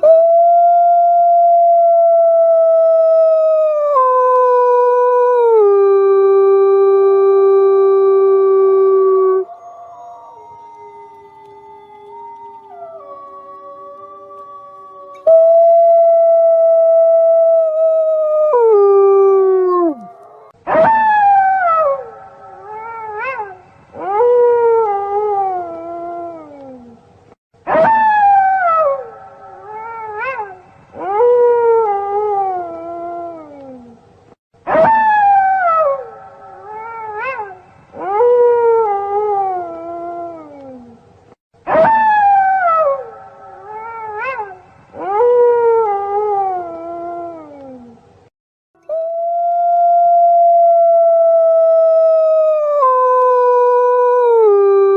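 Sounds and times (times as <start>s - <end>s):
wolves howling in chorus: 8.9s - 15.8s.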